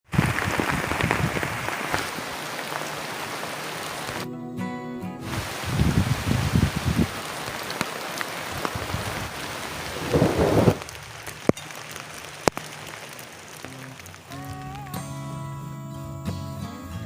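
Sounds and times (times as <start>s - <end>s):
heavy rain falling: 0.0s - 4.2s, 5.2s - 15.1s
thunder rumbling: 0.1s - 4.2s, 5.3s - 14.8s
music: 4.2s - 5.3s, 13.7s - 17.0s
sharp thunder cracks: 8.4s - 11.1s.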